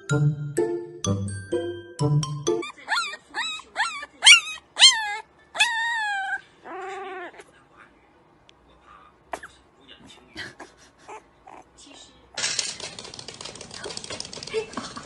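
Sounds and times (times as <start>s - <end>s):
puppy yelping: 2.6s - 7.5s, 11.1s - 11.8s
puppy whining: 2.6s - 7.6s, 10.2s - 12.1s.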